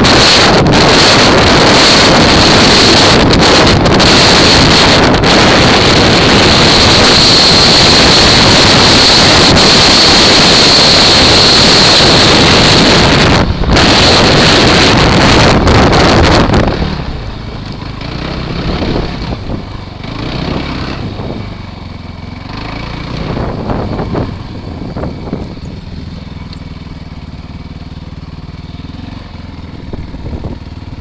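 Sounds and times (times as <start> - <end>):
wind rushing over microphone: 0.0 - 27.6, 29.6 - 31.0.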